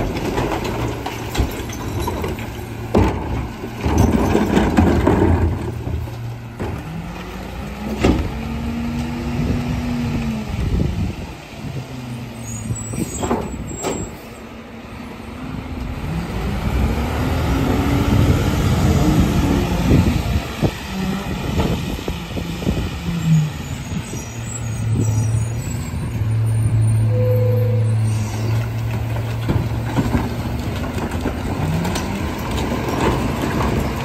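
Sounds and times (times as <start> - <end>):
garbage truck engine revving: 15.3 - 27.1.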